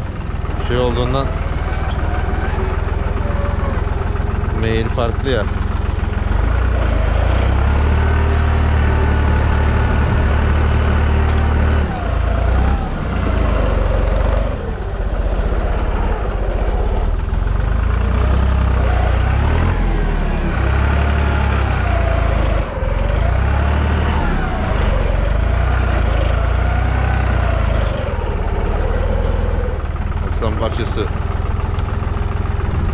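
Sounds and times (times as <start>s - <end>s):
tractor engine running under load: 0.0s - 32.9s
wavering whine: 24.1s - 26.8s.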